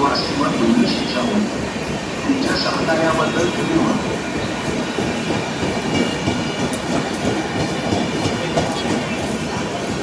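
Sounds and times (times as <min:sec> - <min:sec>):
train wheels clattering on rails: 0:01.8 - 0:10.0.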